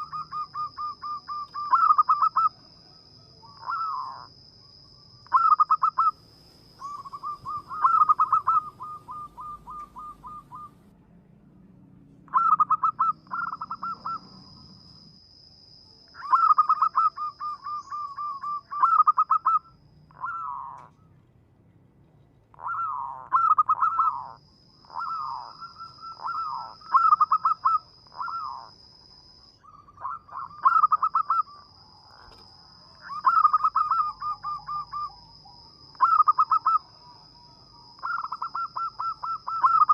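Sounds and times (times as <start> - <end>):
dove cooing: 0.0 - 2.6, 3.4 - 4.3, 5.3 - 10.8, 12.3 - 14.8, 16.2 - 21.2, 22.6 - 28.8, 29.6 - 39.9.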